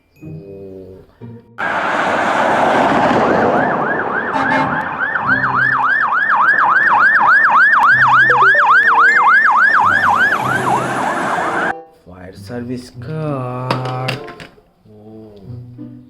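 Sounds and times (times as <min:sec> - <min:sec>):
toy siren wailing: 0:03.4 - 0:11.7.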